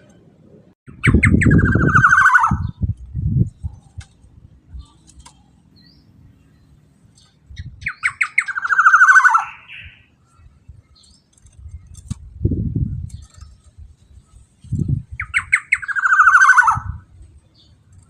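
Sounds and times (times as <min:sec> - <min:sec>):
bird calling: 0:00.9 - 0:02.8, 0:04.7 - 0:10.4, 0:15.2 - 0:17.7.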